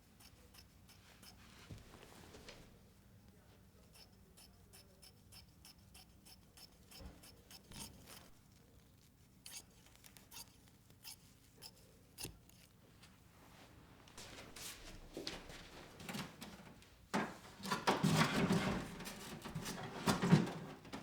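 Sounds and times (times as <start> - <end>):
scissors cutting fabric: 0.1 - 1.4, 3.9 - 8.7, 9.4 - 12.8.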